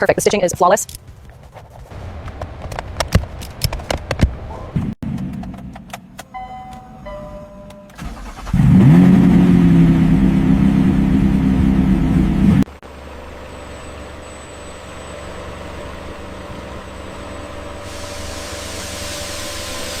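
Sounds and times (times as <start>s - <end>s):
quiet steady engine hum: 0.0s - 18.2s
electronic chime tones: 6.3s - 8.0s
car engine starting and revving: 7.9s - 12.7s.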